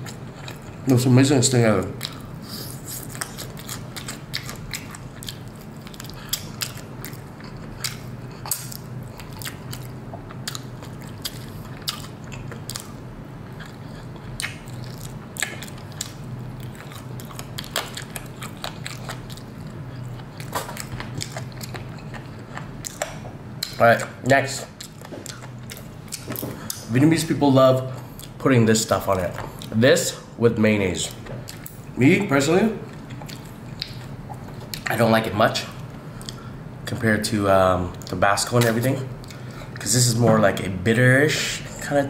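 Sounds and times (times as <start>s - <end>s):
chewing and crunching fried chicken: 0.0s - 27.0s, 27.8s - 29.8s, 31.0s - 36.6s, 37.9s - 40.2s.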